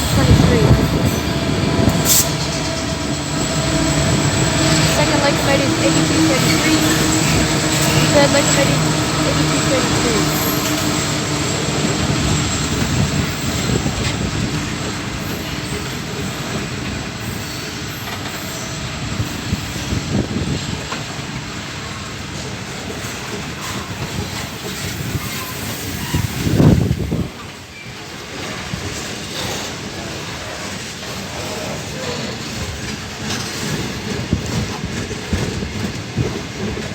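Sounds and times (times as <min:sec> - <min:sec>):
steel wheels rolling on rail: 0:00.0 - 0:36.9
wheel squeal: 0:23.6 - 0:26.8.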